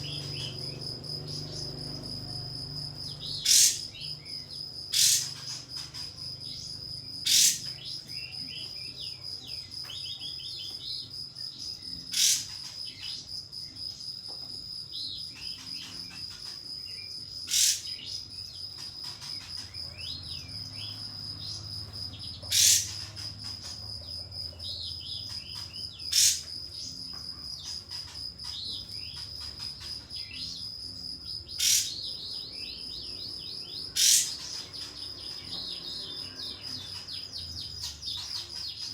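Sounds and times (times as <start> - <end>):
bird twittering: 0.0 - 9.2, 11.7 - 13.2, 15.0 - 38.9
high insect-like tone: 0.0 - 38.9
songbird sharp explosive calls: 3.4 - 4.1, 4.9 - 5.9, 7.2 - 7.9, 12.1 - 12.6, 17.5 - 18.2, 22.4 - 23.3, 25.3 - 26.5, 31.6 - 32.1, 33.9 - 34.6.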